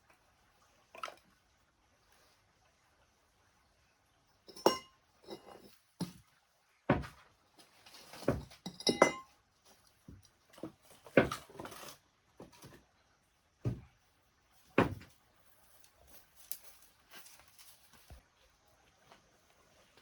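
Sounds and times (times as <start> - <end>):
kitchenware knocking and clattering: 4.5 - 6.2, 8.2 - 9.3
metallic clink: 8.7 - 9.3.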